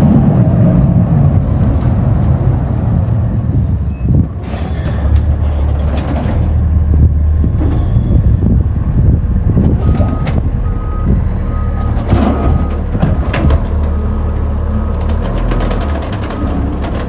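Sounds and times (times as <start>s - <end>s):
garbage truck diesel engine: 0.0s - 17.0s
reversing alarm beeping: 9.8s - 12.8s.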